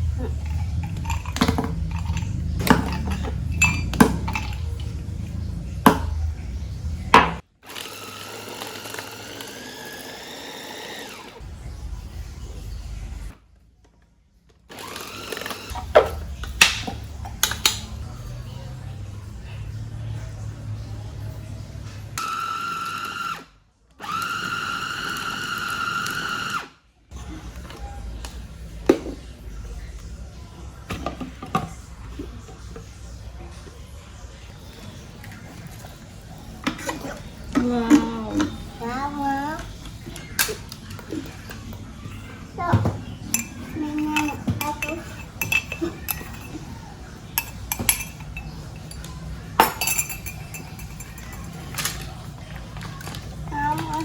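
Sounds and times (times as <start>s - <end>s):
low steady hum: 0.0s - 7.4s
electric kitchen chopper whining: 0.0s - 11.6s, 14.7s - 18.0s, 22.1s - 27.3s, 35.8s - 48.9s
kitchen knocks and clinks: 0.2s - 6.3s, 7.1s - 7.4s, 15.7s - 18.0s, 42.6s - 54.0s.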